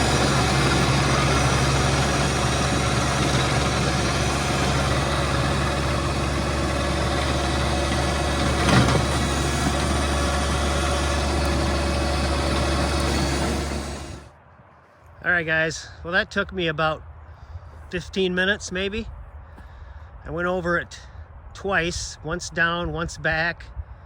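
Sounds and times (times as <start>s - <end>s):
tractor diesel engine running: 0.0s - 14.3s.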